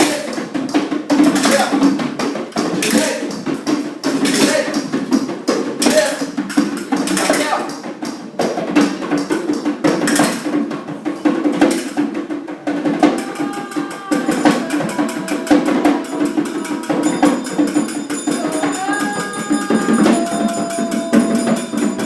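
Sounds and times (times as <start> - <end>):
hand percussion clicks and tapping: 0.0 - 22.0
ringing pitched notes: 12.9 - 22.0.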